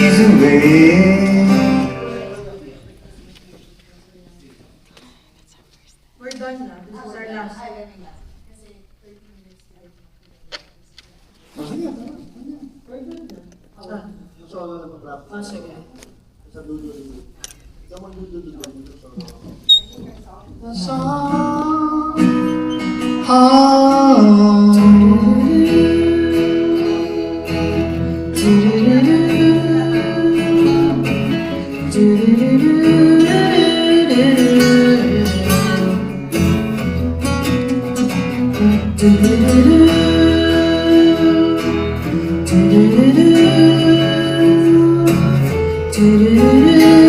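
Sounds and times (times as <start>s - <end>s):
person singing: 0.0s - 2.6s, 20.6s - 36.6s, 38.1s - 47.0s
acoustic guitar: 0.0s - 3.4s, 19.2s - 47.0s.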